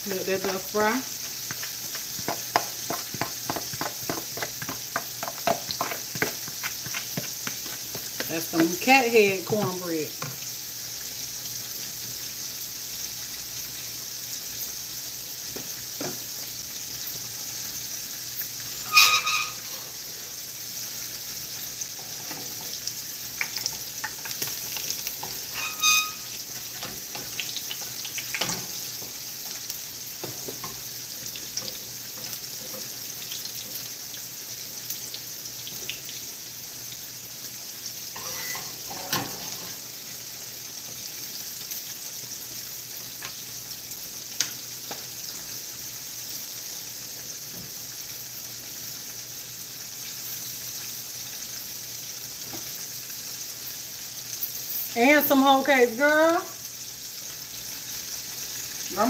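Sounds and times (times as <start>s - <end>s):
food frying in hot oil: 0.0s - 59.0s
utensil clinking on pan: 18.9s - 19.7s, 25.2s - 26.3s.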